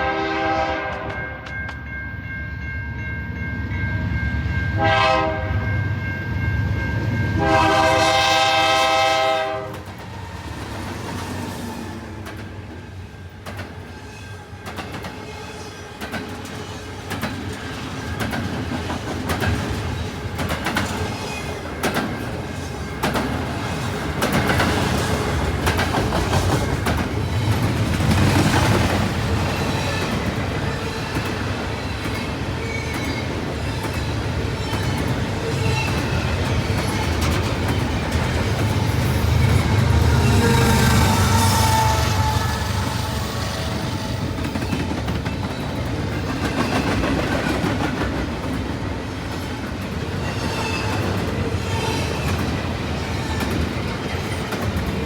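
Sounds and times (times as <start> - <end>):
train rumble: 16.0 - 55.0.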